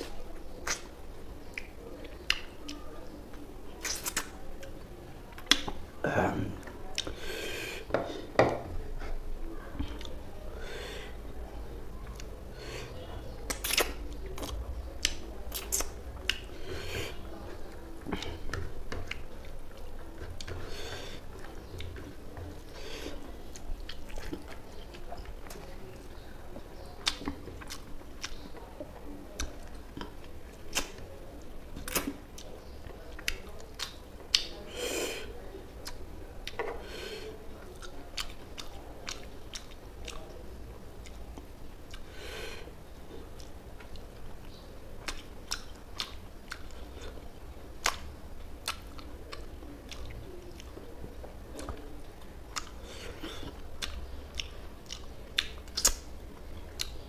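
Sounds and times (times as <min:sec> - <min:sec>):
mouth clicks and crunches: 0:00.0 - 0:04.7, 0:05.3 - 0:05.8, 0:12.0 - 0:57.0
noisy smacking sounds: 0:00.0 - 0:04.7, 0:13.4 - 0:25.7, 0:26.6 - 0:34.6, 0:45.0 - 0:57.0.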